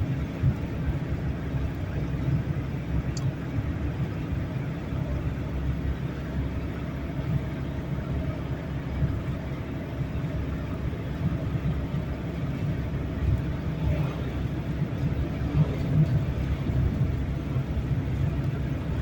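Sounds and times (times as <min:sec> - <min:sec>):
car engine and road noise: 0:00.0 - 0:19.0
faint tick: 0:03.1 - 0:03.3.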